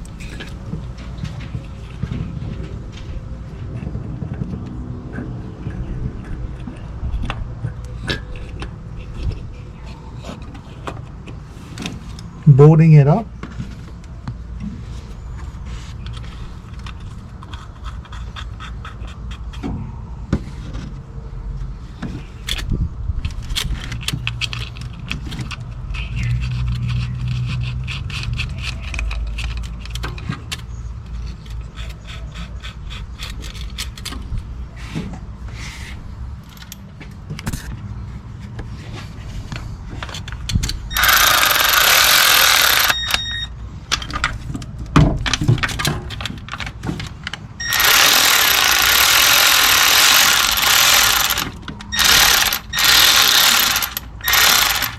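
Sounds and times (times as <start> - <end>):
cordless ratchet motor running: 40.9 - 43.5, 47.6 - 54.9
ratchet clicking: 40.9 - 43.5, 47.6 - 54.9.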